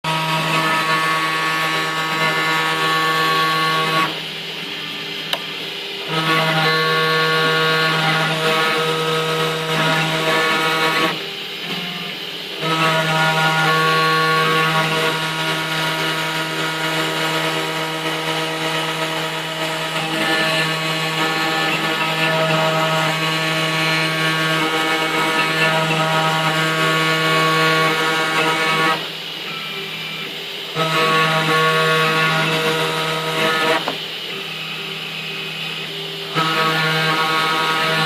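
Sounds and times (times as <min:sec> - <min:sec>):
milling machine spindle whine: 0:00.1 - 0:38.0.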